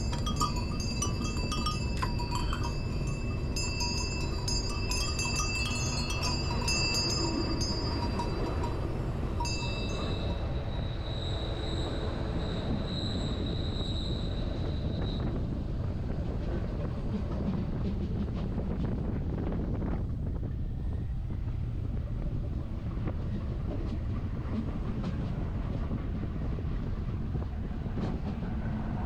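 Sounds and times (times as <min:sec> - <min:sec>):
high ringing wheel squeal: 0:00.0 - 0:15.4
train rumbling on rails: 0:00.0 - 0:29.0.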